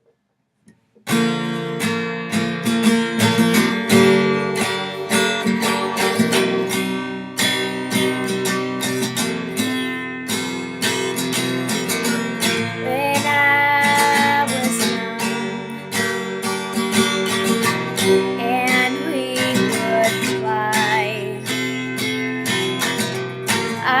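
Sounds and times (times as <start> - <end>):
acoustic guitar strumming chords: 1.1 - 24.0.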